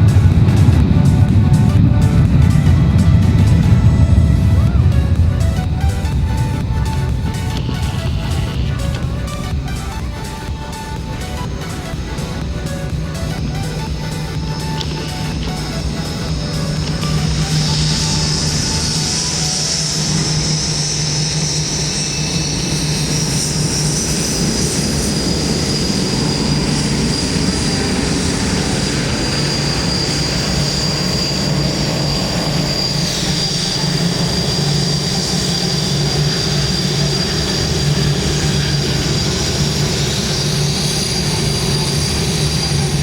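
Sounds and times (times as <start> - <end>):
jet engines whining: 0.0 - 43.0.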